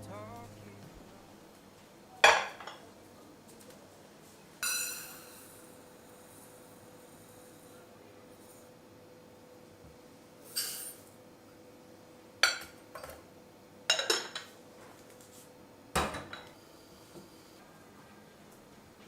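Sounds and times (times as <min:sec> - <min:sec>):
dishes and cutlery clattering: 0:13.9 - 0:14.6.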